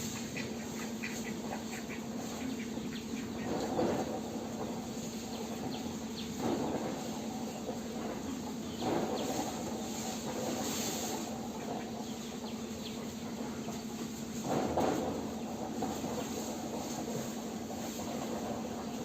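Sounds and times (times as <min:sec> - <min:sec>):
small birds chirping: 0:00.2 - 0:04.2, 0:04.8 - 0:10.3.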